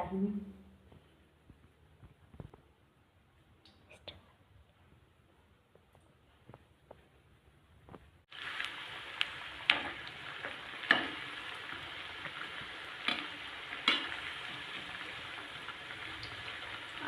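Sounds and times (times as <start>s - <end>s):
food sizzling in hot oil: 8.3s - 17.0s.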